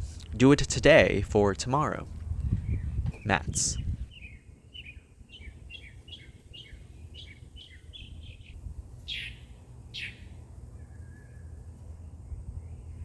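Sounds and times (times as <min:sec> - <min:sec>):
songbirds chirping: 0:00.9 - 0:13.0
downward-sweeping bird calls: 0:02.6 - 0:13.0.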